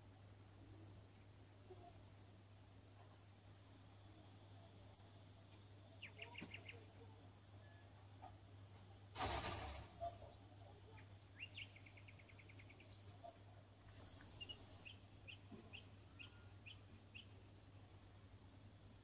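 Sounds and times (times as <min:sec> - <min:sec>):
low steady hum: 0:00.0 - 0:09.2, 0:09.8 - 0:19.0
faint bird chirps: 0:01.6 - 0:02.1, 0:04.0 - 0:08.3, 0:10.0 - 0:17.5.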